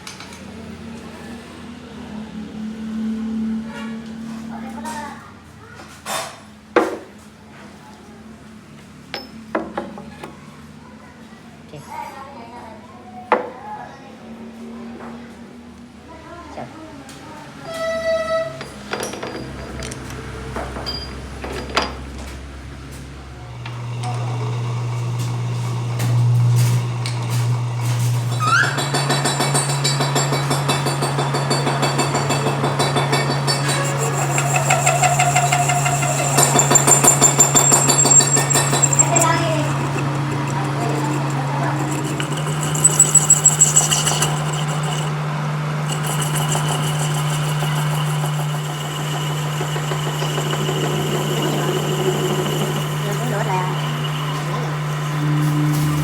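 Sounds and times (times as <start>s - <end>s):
machine humming: 23.4s - 56.0s
metallic knocks: 27.2s - 45.1s.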